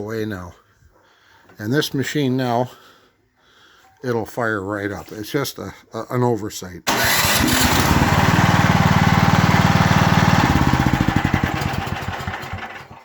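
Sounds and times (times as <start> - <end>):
snowblower engine running: 6.9 - 13.0.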